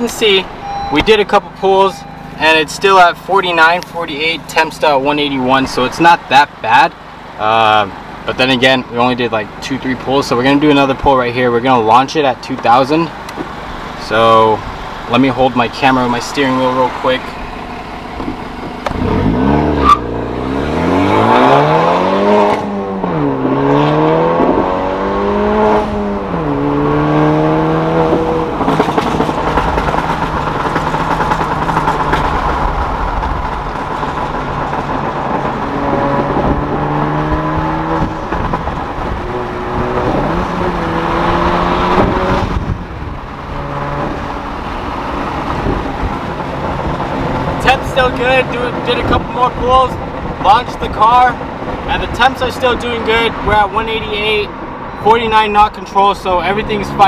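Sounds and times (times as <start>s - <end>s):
car engine revving hard: 16.0s - 53.7s.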